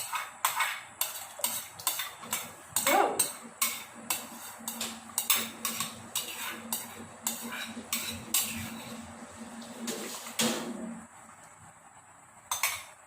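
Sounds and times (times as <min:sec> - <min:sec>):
metal utensil scraping a pot: 0:00.0 - 0:09.2.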